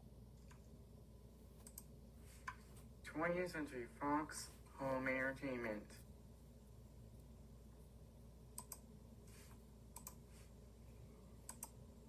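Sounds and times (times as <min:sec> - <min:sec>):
steady low hum: 0:00.0 - 0:12.0
faint clicks: 0:09.9 - 0:10.2, 0:11.4 - 0:11.8.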